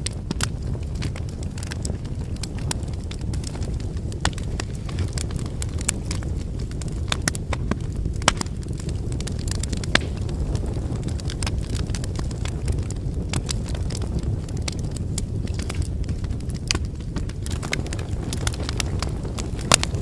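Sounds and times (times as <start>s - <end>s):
firewood crackling and popping: 0.0s - 20.0s
low rumble of flames: 0.0s - 20.0s.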